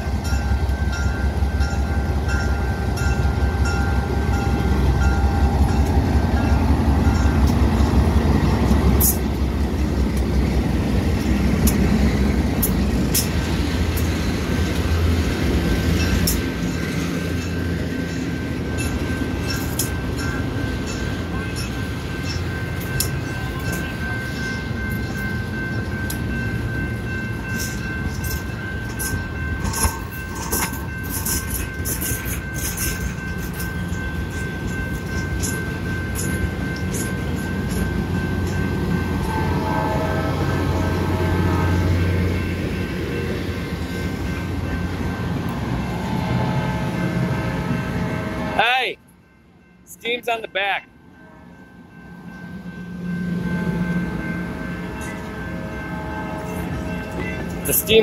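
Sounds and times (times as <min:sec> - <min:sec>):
wheel-on-rail noise with clicks: 0:00.0 - 0:48.4
diesel locomotive engines rumbling: 0:00.0 - 0:58.0
steady high tone: 0:14.2 - 0:58.0.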